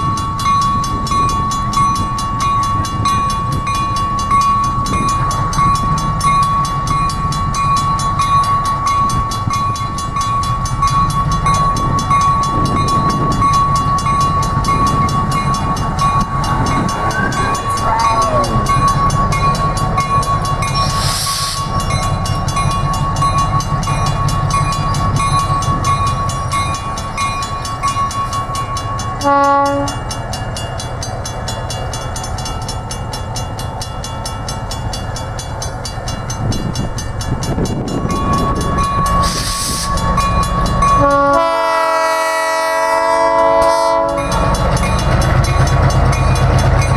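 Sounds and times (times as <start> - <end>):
diesel locomotive engine rumble: 0.0 - 46.9
air hiss: 20.8 - 21.7, 39.2 - 40.0
air horn blast: 29.2 - 30.0, 41.0 - 44.3.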